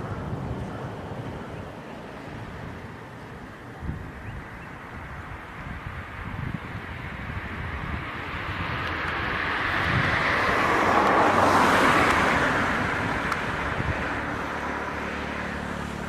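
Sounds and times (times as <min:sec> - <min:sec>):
road vehicle passing by: 0:00.0 - 0:16.0.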